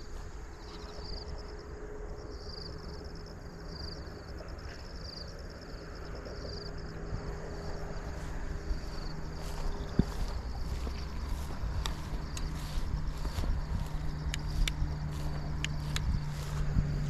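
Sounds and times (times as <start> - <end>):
faint steady hum: 0.0 - 17.0
insects chirping in trills: 0.0 - 17.0
low rumble: 3.7 - 17.0.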